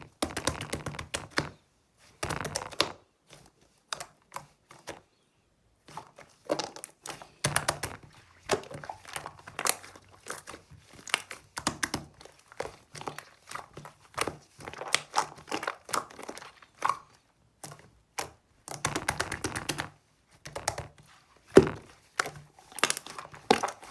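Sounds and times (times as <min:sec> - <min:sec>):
slime squishing and crackling: 0:02.2 - 0:03.0, 0:06.4 - 0:23.9.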